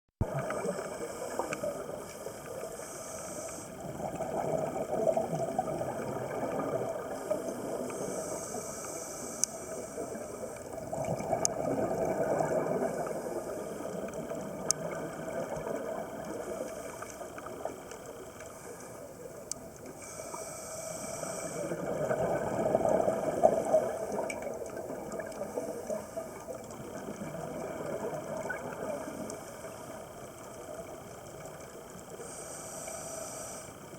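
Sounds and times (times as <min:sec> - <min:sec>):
exhaled bubbles rumbling: 0:00.2 - 0:02.0, 0:03.8 - 0:08.0, 0:10.6 - 0:18.3, 0:21.6 - 0:32.0
regulator inhalation hiss: 0:00.5 - 0:04.0, 0:07.0 - 0:10.8, 0:16.2 - 0:19.4, 0:20.0 - 0:22.0, 0:31.9 - 0:33.9.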